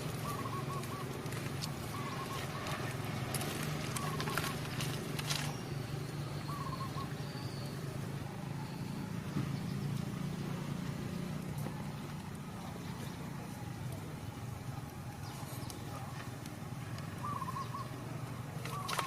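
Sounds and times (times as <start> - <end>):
faint bird chirps: 0.0 - 1.2, 1.8 - 3.0, 3.9 - 7.9, 17.1 - 19.0
steady low hum: 0.0 - 19.0.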